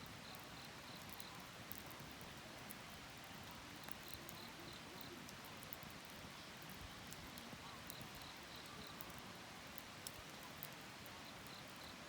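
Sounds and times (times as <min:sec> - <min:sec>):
bonfire crackling: 0:08.6 - 0:11.5.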